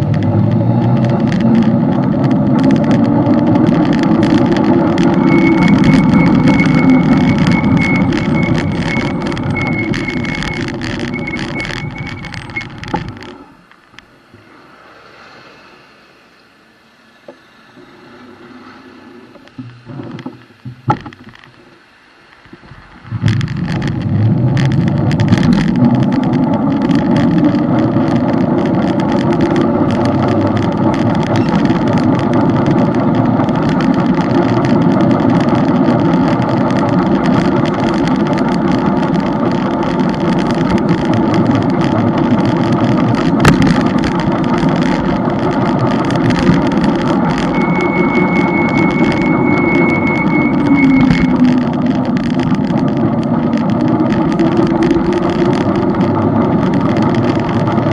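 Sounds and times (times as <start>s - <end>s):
wind buffeting microphone: 0.0s - 13.4s, 22.4s - 57.9s
thin high whistle: 47.4s - 51.6s.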